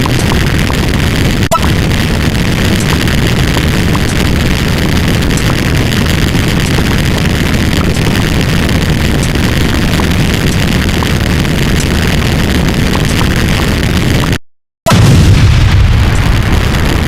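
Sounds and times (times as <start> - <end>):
loud low rumble: 14.9 - 17.0.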